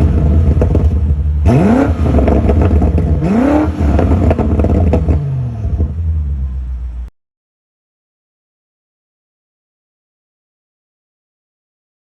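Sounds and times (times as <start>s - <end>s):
car engine revving: 0.0s - 7.1s
exhaust crackles: 0.0s - 7.1s.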